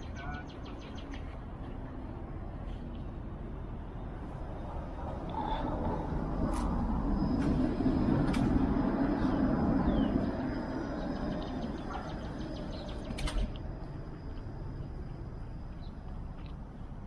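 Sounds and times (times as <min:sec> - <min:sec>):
road vehicle passing: 0:00.0 - 0:17.0
sharp clicks: 0:13.0 - 0:13.7.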